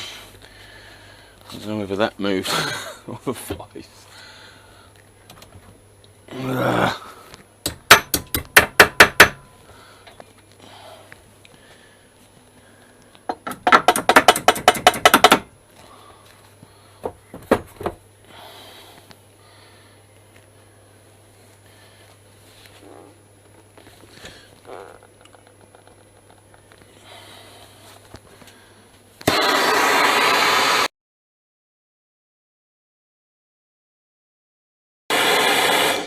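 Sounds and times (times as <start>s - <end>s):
hammer strikes on steel bar: 7.6s - 9.5s.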